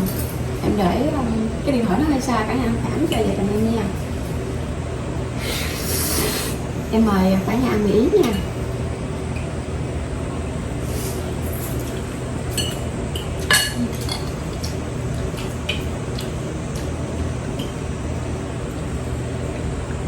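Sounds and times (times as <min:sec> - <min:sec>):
low background hum: 0:00.0 - 0:20.0
cutlery clinking on plates: 0:12.5 - 0:14.6.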